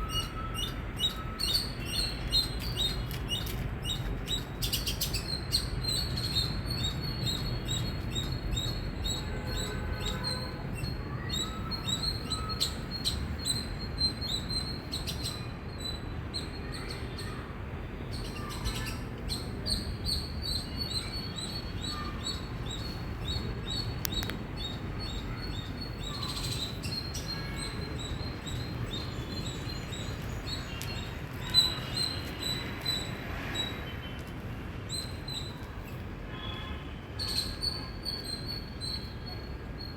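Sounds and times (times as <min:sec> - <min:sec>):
squirrel chirping: 0:00.0 - 0:15.4, 0:18.4 - 0:32.6.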